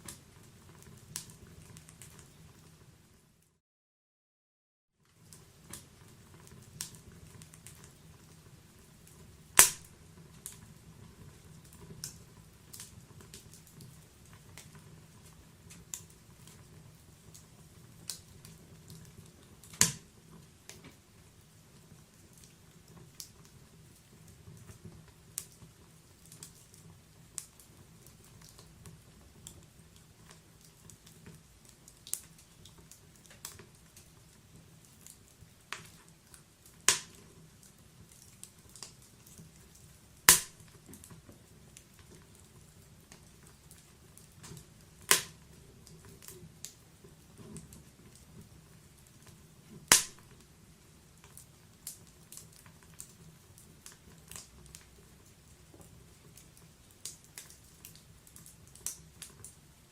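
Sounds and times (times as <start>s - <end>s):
loud fire snaps: 0.0s - 3.5s, 5.2s - 59.7s
wood fire crackling: 0.0s - 3.6s, 5.0s - 59.9s
fire hissing: 5.2s - 10.1s, 38.4s - 40.8s, 44.5s - 45.5s, 49.3s - 50.3s.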